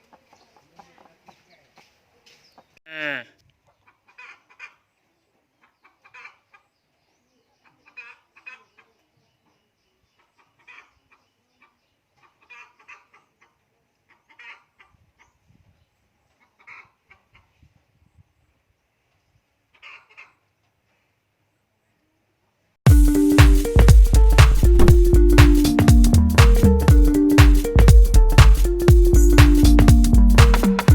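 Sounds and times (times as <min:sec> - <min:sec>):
chickens clucking: 0:00.0 - 0:02.7, 0:03.7 - 0:04.9, 0:05.6 - 0:06.7, 0:07.6 - 0:09.1, 0:10.2 - 0:15.3, 0:16.4 - 0:17.6.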